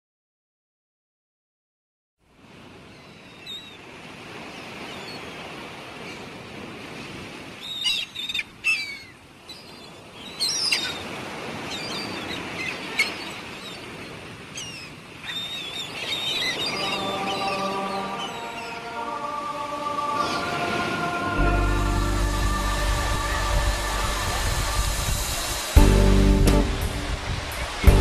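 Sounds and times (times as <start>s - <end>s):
birds chirping: 14.6s - 21.6s
outdoor ambience hiss: 15.0s - 28.0s.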